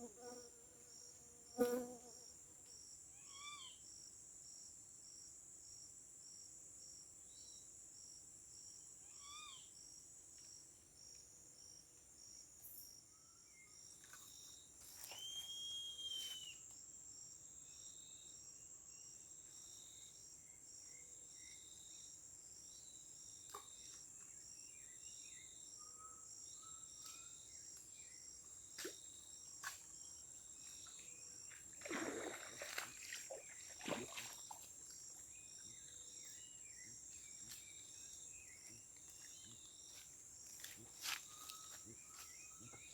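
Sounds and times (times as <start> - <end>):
insects buzzing: 0.0 - 3.8, 8.7 - 42.9
cricket-like chirping: 0.0 - 42.9
bird whistle: 15.0 - 16.6.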